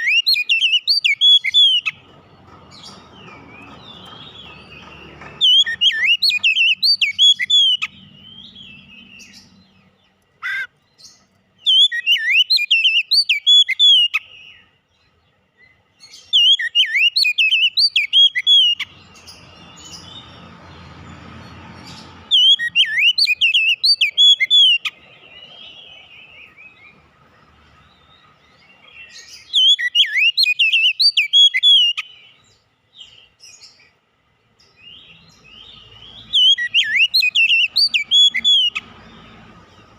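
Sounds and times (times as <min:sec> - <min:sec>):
bird whistling song: 0:00.0 - 0:02.0, 0:02.7 - 0:14.8, 0:15.6 - 0:33.9, 0:34.6 - 0:39.9.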